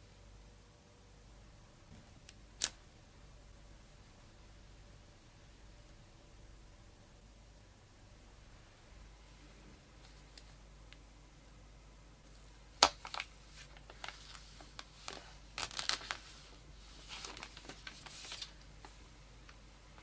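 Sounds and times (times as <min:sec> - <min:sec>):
packaging crinkling and tapping: 0:12.8 - 0:16.2.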